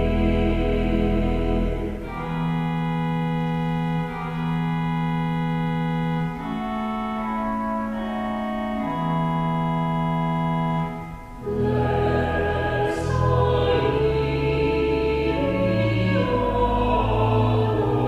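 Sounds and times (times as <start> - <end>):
vocal quartet singing: 0.0 - 2.5, 11.4 - 18.0
organ chords: 0.0 - 18.0.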